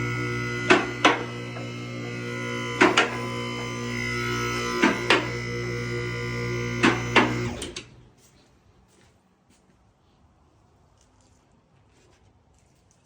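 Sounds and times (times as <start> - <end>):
hydraulic pump motor humming: 0.0 - 8.1.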